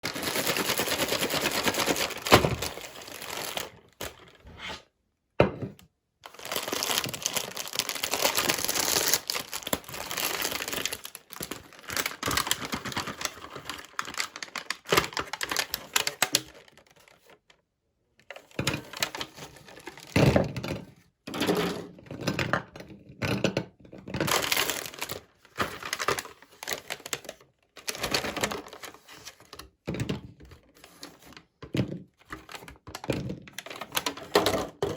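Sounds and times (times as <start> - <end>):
meat grinder crunching candy: 0.0 - 4.2, 6.3 - 17.2, 24.1 - 28.7.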